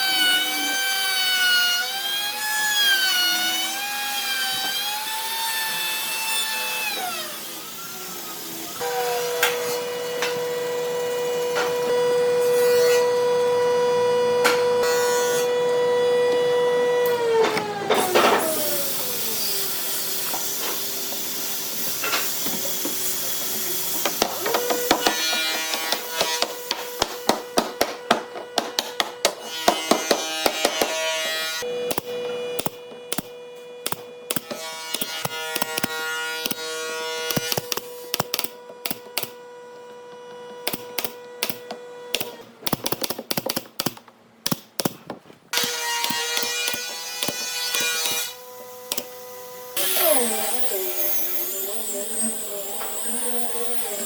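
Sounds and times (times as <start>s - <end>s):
power tool motor whining: 15.5s - 28.9s, 48.0s - 54.0s.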